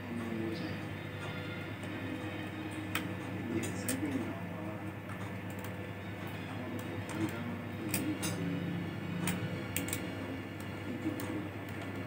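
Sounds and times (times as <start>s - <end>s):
faint background music: 0.0s - 12.0s
screwdriver clicking on laptop parts: 9.2s - 12.0s.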